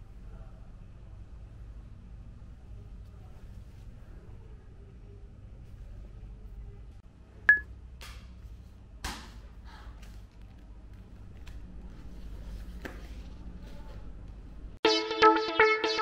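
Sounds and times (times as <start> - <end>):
low steady hum: 0.0 - 7.9.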